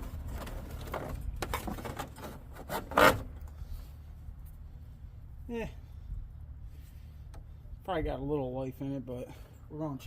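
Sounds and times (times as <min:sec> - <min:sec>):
rubber belt rubbing and scraping: 0:00.0 - 0:04.0.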